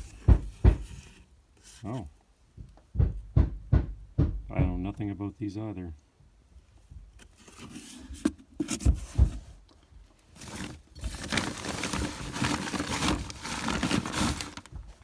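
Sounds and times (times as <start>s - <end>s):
dull thumps: 0.0s - 1.2s, 8.7s - 9.6s, 10.4s - 15.0s
rustling and crinkling: 0.0s - 2.2s, 6.7s - 15.0s.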